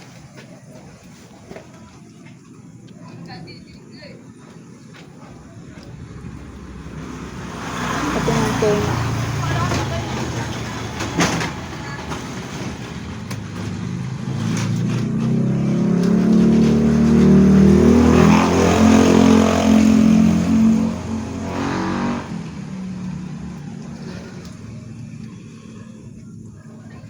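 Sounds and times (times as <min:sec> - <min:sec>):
vehicle engine passing: 0:05.0 - 0:27.0.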